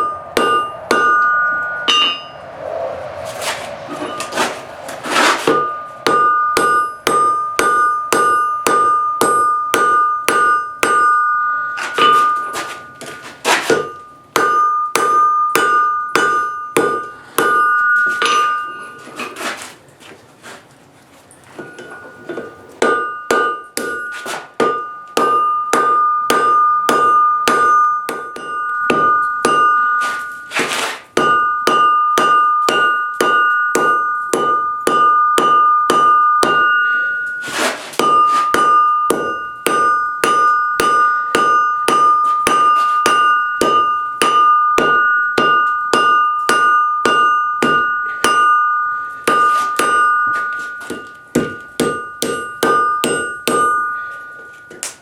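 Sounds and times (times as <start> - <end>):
hammer striking steel on anvil: 0.0 - 19.4, 21.6 - 55.0
brief rushing noise: 2.2 - 6.0.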